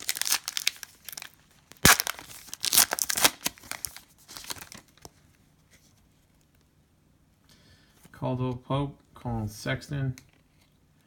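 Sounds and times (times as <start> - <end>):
plastic wrapper tearing and crinkling: 0.0 - 5.1.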